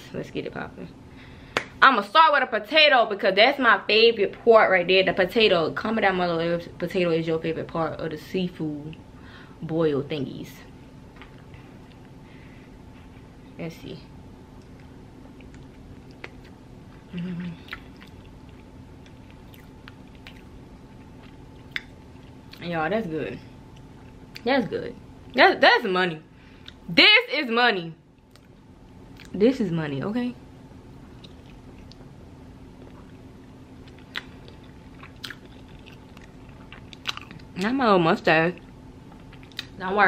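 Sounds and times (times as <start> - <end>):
person chewing wet mouth sounds: 14.6 - 22.6, 31.1 - 32.1, 32.7 - 37.6
person humming mm: 17.0 - 17.8.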